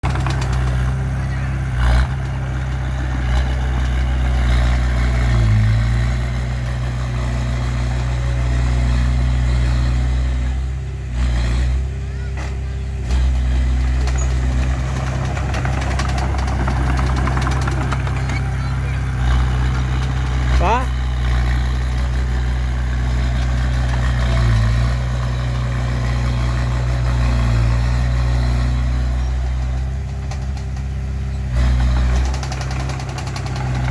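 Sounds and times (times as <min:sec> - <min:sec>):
bulldozer diesel engine running: 0:00.0 - 0:33.9.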